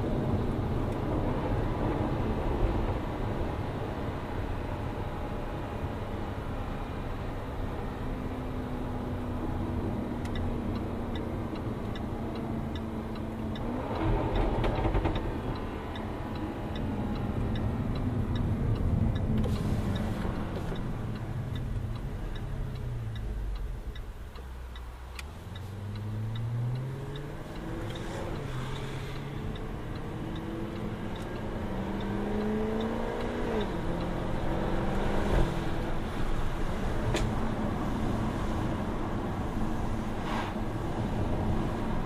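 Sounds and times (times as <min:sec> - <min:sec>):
turn signal ticking: 0:00.0 - 0:42.0
car engine revving: 0:24.9 - 0:38.4.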